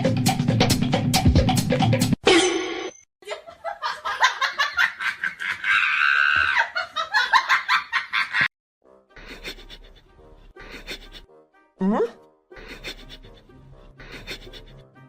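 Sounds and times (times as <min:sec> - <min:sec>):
music: 0:00.0 - 0:02.2, 0:08.8 - 0:15.0
person laughing: 0:03.2 - 0:08.5, 0:09.2 - 0:10.0, 0:11.8 - 0:13.4, 0:14.0 - 0:14.8.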